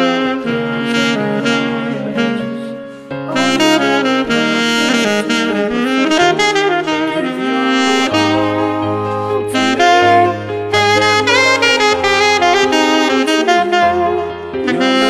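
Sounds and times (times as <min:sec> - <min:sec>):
jazz saxophone melody: 0:00.0 - 0:15.0.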